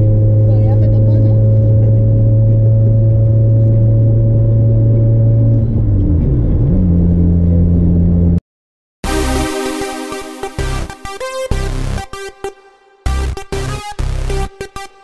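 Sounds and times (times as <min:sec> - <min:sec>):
car engine droning from inside cabin: 0:00.0 - 0:08.4.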